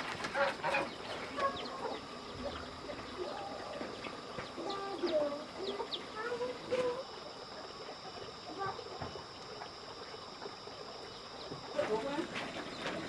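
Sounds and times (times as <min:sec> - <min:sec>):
chickens clucking: 0:00.0 - 0:08.0.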